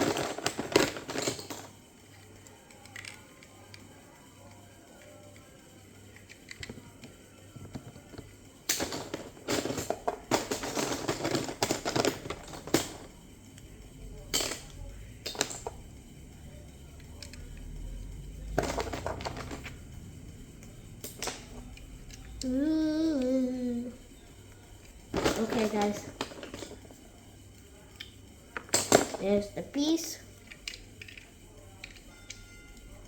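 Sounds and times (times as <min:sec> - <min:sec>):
plastic bricks clattering: 0:00.0 - 0:01.7, 0:07.6 - 0:13.2, 0:18.4 - 0:19.9, 0:25.1 - 0:26.9.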